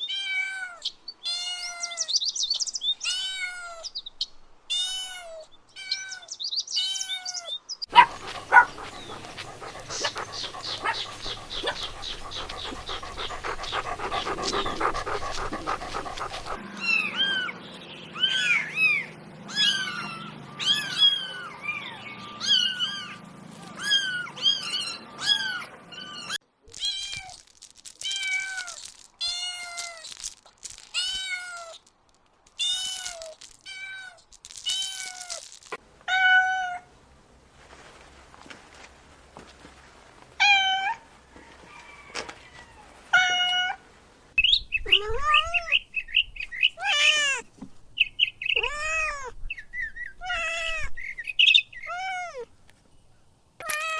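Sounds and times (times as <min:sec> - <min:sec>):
rapid crackling: 0:07.9 - 0:26.4, 0:27.0 - 0:35.8
kittens mewing: 0:07.9 - 0:30.2.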